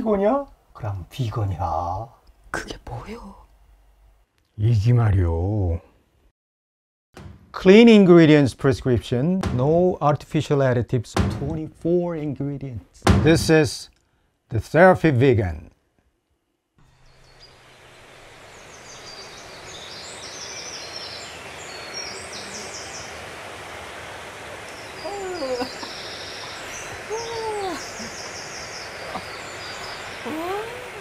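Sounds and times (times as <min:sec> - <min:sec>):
steady hiss: 0:16.8 - 0:31.0
lower bird calls: 0:16.9 - 0:23.4, 0:24.6 - 0:31.0
small birds trilling: 0:16.9 - 0:23.4, 0:24.6 - 0:31.0.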